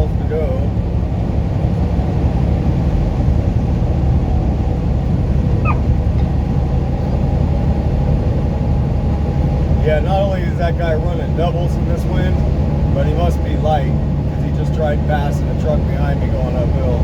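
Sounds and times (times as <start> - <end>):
road rumble: 0.0 - 17.0
truck engine drone: 0.0 - 17.0
high rising chirp: 5.6 - 5.9.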